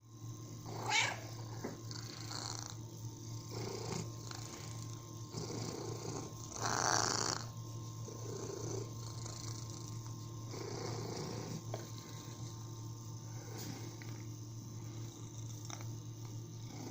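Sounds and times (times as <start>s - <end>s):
cat purring: 0.6s - 16.9s.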